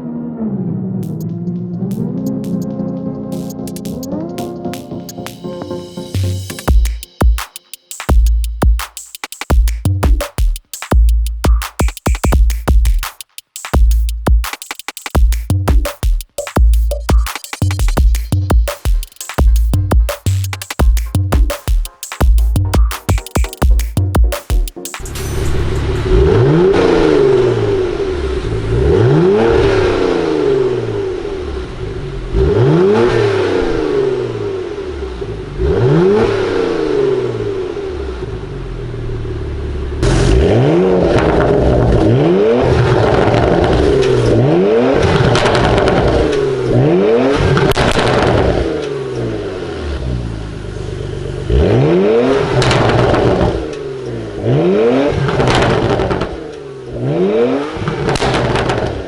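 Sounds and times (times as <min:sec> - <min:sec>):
exhaust crackles: 0:00.0 - 0:05.4, 0:25.8 - 0:59.0
car engine revving: 0:25.9 - 0:59.0.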